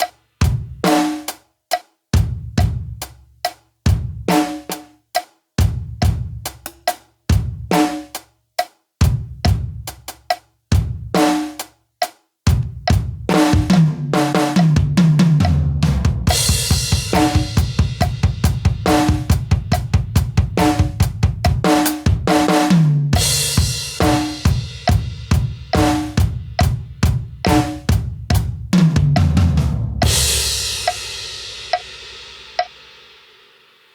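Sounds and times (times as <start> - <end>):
acoustic drum kit groove: 0.0 - 33.6.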